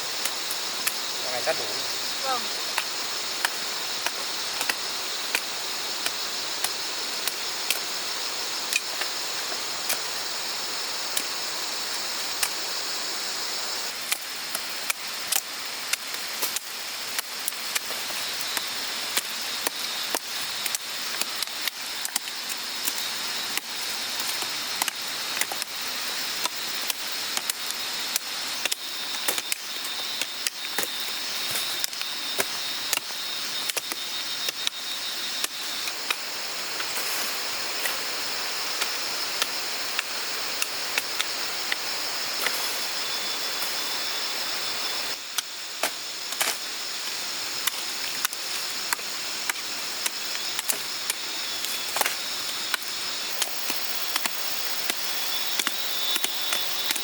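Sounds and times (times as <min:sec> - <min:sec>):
high-pitched hiss: 0:00.0 - 0:57.0.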